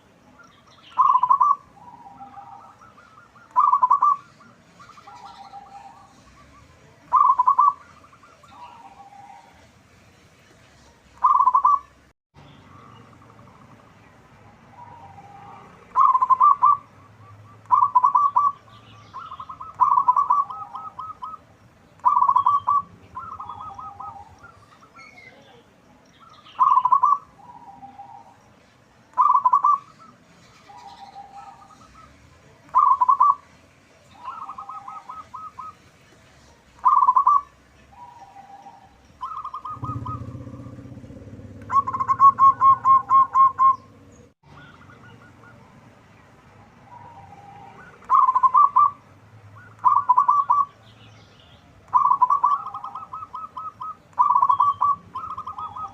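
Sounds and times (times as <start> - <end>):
dove cooing: 0.9 - 9.7, 11.2 - 12.0, 14.4 - 21.4, 22.0 - 25.1, 26.4 - 28.4, 29.1 - 33.4, 34.2 - 35.8, 36.8 - 45.7, 46.8 - 50.8, 51.9 - 55.9
low hum: 39.7 - 44.4.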